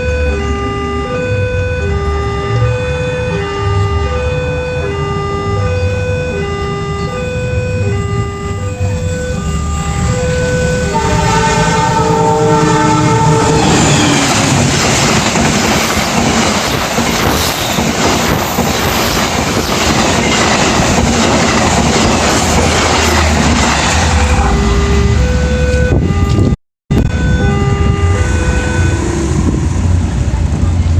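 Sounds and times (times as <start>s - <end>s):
train horn: 0.0s - 15.1s, 22.6s - 30.0s
train passing with rushing rumble: 0.0s - 30.9s
wheels clacking over rail joints: 13.6s - 24.1s.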